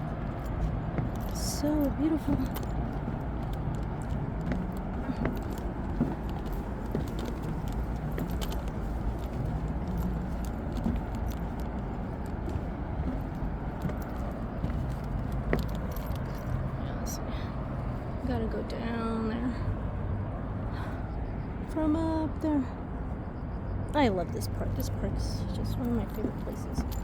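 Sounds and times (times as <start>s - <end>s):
handling rustles and clicks: 0.0s - 16.8s, 25.7s - 27.0s
footsteps on outdoor stairs: 0.0s - 22.1s, 24.4s - 27.0s
low outdoor rumble: 0.0s - 27.0s.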